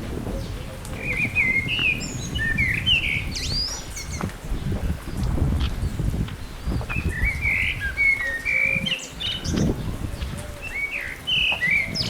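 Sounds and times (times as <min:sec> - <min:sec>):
low rumbling noise: 0:00.0 - 0:08.1
songbirds chirping: 0:00.0 - 0:12.0.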